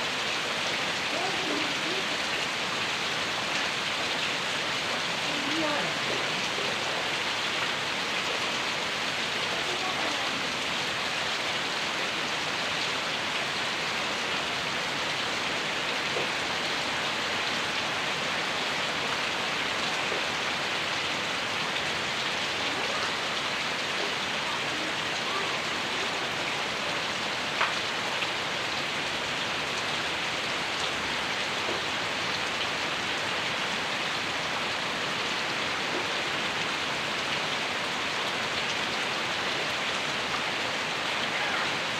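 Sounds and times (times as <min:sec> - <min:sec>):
heavy rain pattering: 0:00.0 - 0:41.9.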